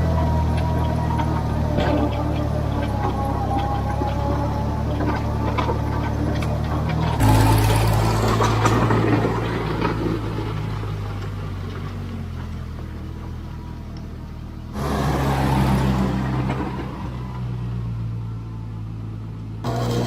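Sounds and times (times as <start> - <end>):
tractor engine running under load: 0.0 - 20.0.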